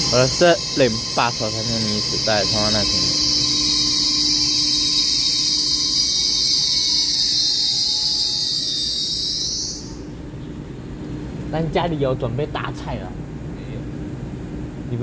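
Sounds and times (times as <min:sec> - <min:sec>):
high-pitched train hiss: 0:00.0 - 0:10.1.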